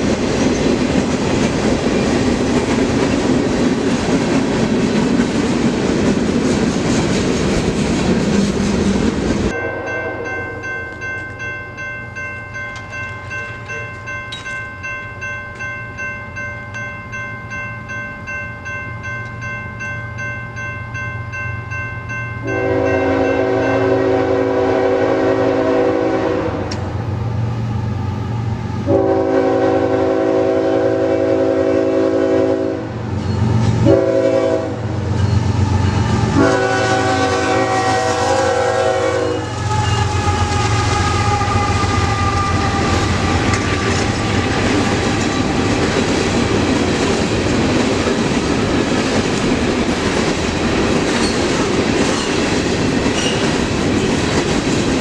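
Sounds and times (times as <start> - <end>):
train rumbling on rails: 0.0 - 19.8, 20.5 - 55.0
locomotive air horn blasts: 9.6 - 10.6, 22.4 - 26.8, 28.9 - 33.0, 33.8 - 35.0, 36.3 - 45.6.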